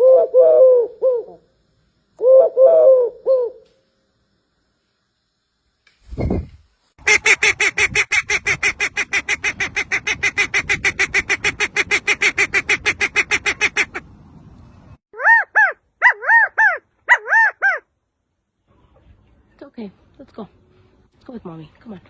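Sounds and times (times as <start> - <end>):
rising and falling animal calls: 15.2 - 17.9.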